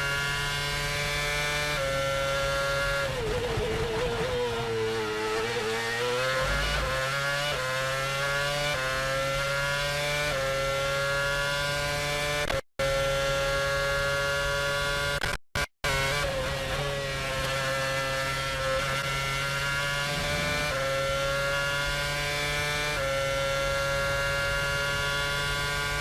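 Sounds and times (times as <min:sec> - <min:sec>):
race car engine at high revs: 0:00.0 - 0:26.0.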